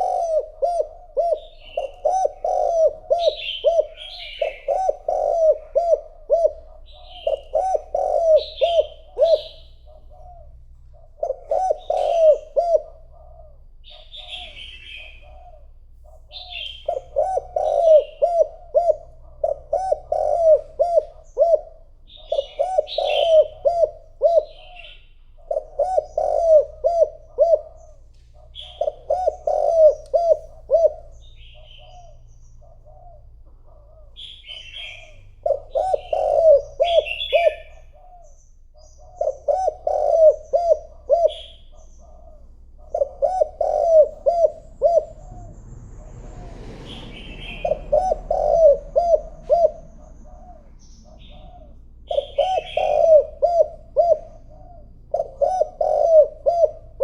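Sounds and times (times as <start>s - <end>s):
dove cooing: 0.0s - 57.0s
small bird chirping: 0.0s - 57.0s.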